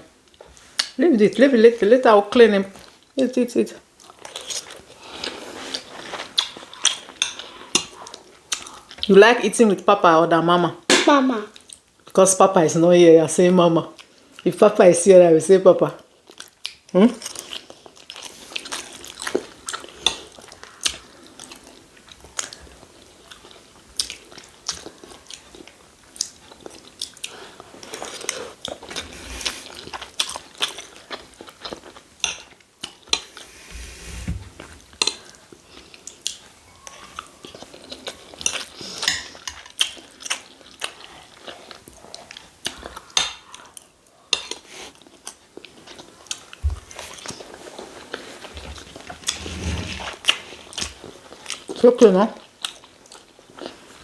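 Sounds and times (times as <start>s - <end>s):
chewing and biting: 16.2s - 33.4s, 52.4s - 54.0s.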